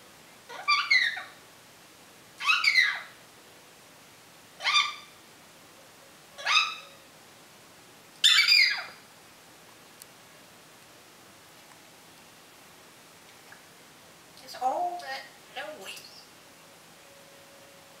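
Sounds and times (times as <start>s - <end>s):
parrot calling: 0.5s - 1.4s, 2.4s - 3.2s, 4.6s - 5.2s, 6.4s - 7.1s, 8.2s - 9.0s.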